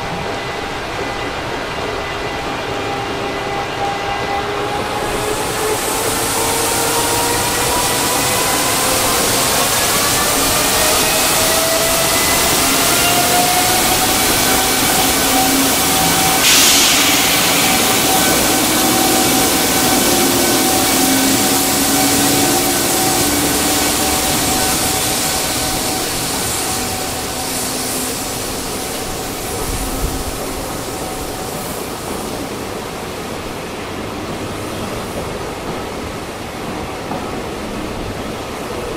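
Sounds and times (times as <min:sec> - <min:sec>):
electric locomotive motor whine: 0:00.0 - 0:32.8
rumble of train wagons: 0:00.0 - 0:38.9
heavy rain hiss: 0:05.0 - 0:36.4
short burst of hiss: 0:13.9 - 0:31.3.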